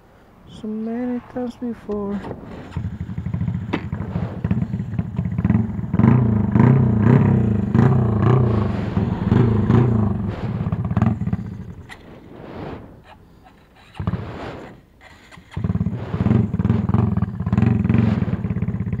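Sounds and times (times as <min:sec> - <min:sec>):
motorcycle engine revving: 0:02.3 - 0:13.0, 0:15.4 - 0:19.0.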